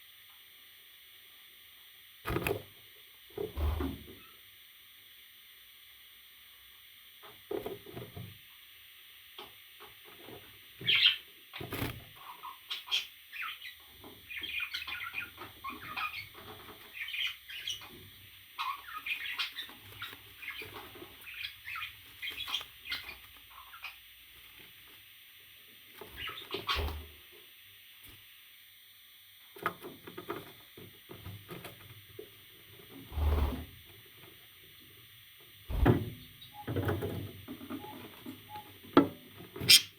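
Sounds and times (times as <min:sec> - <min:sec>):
parrot chirping and squawking: 0:12.2 - 0:13.7, 0:14.3 - 0:17.9, 0:18.6 - 0:24.0, 0:26.2 - 0:27.0, 0:39.6 - 0:39.9
loud thumps: 0:35.7 - 0:36.2.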